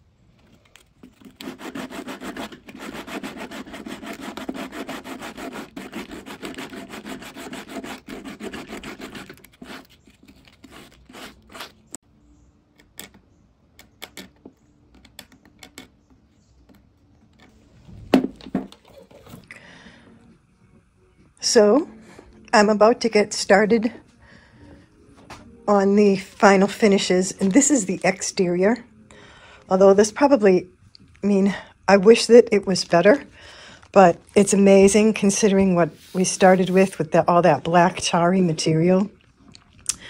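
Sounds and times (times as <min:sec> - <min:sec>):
hand tool strokes on wood: 0:01.4 - 0:09.9.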